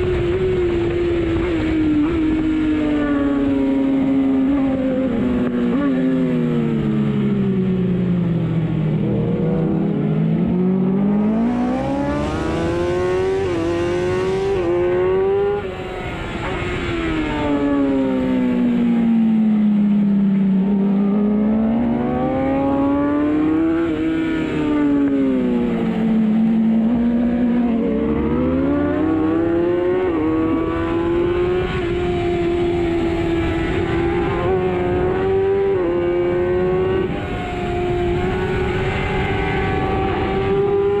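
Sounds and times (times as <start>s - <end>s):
motorcycle engine revving: 0.0s - 41.0s
wind rushing over microphone: 0.0s - 41.0s.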